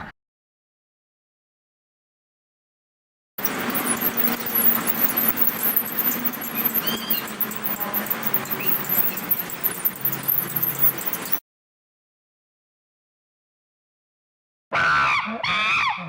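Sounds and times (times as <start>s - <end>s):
monkey chirping calls: 3.4s - 11.4s
noisy background: 3.4s - 11.4s.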